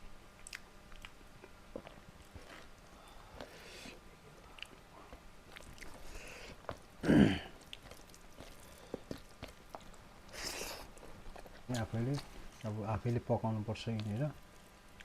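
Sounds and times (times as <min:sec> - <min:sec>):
wet mouth clicks: 0:00.4 - 0:01.2
close chewing: 0:00.4 - 0:15.0
loud mouth or throat sound: 0:07.0 - 0:07.6.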